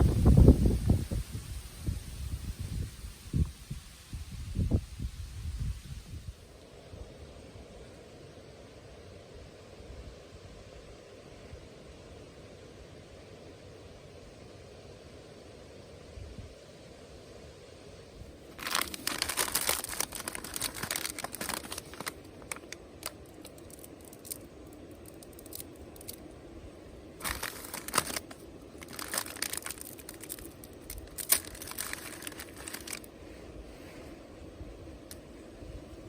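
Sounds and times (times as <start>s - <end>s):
crinkling and rustling handling: 18.4s - 26.3s, 27.2s - 34.3s.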